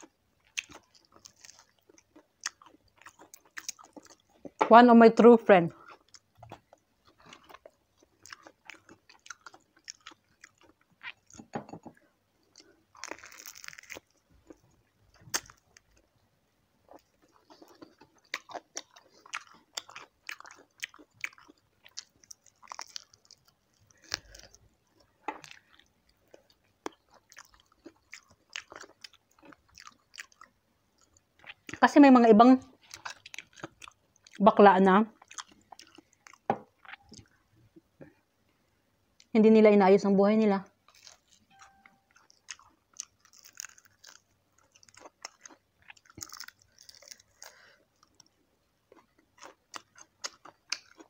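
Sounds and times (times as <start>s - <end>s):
crunching crispy food: 0.0s - 4.4s, 5.8s - 11.4s, 12.5s - 16.0s, 16.9s - 31.8s, 40.8s - 48.4s.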